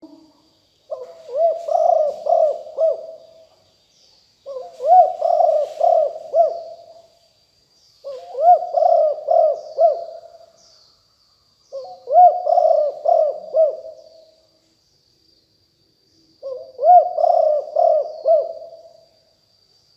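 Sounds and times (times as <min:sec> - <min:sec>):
small birds chirping: 0:00.0 - 0:18.7
dove cooing: 0:00.9 - 0:03.4, 0:04.4 - 0:07.0, 0:08.0 - 0:10.4, 0:11.7 - 0:14.2, 0:16.4 - 0:18.9.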